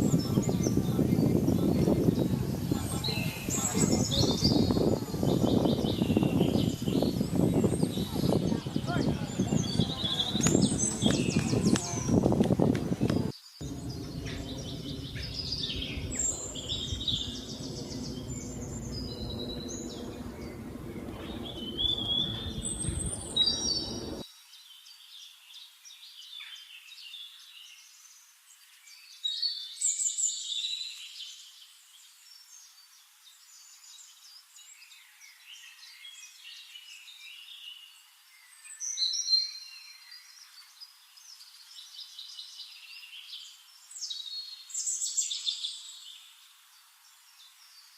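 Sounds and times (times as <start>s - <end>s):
songbirds chirping and singing: 0.0s - 24.2s
low steady hum: 9.6s - 24.2s.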